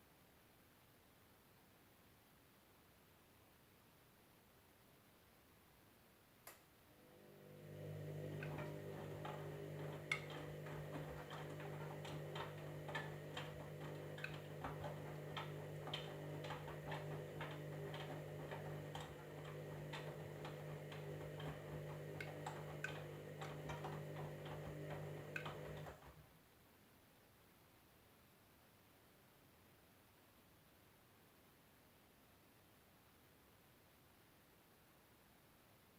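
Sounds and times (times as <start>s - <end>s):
washing machine motor hum: 6.9s - 26.2s
relay click: 7.7s - 26.0s
clicks and taps from load: 8.3s - 26.0s.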